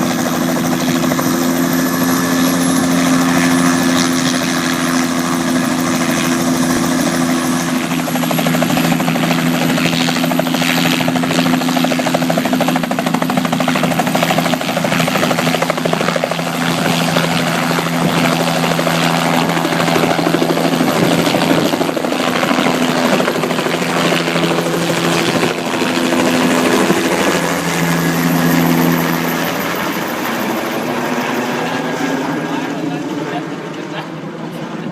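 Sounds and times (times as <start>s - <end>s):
helicopter rotor chop: 0.0s - 34.9s.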